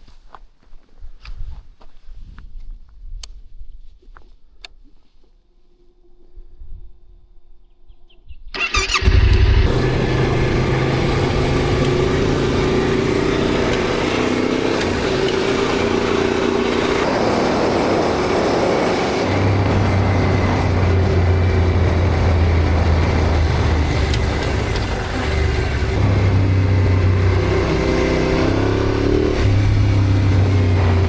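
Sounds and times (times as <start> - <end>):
motorcycle starter cranking: 8.6 - 17.1, 19.2 - 28.0
motorcycle engine running: 8.8 - 31.0.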